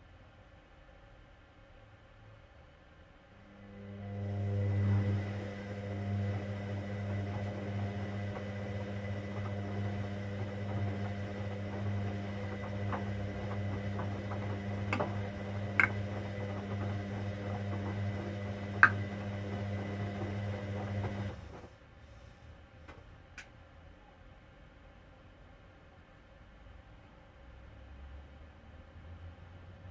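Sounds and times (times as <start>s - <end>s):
washing machine humming: 3.4s - 21.8s.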